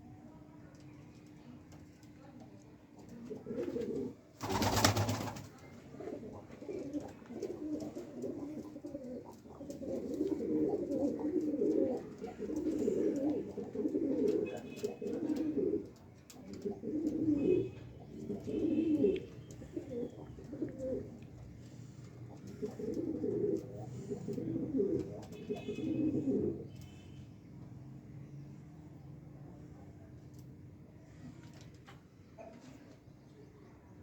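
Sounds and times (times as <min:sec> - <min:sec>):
pigeons cooing: 0:06.0 - 0:21.2, 0:22.1 - 0:26.7.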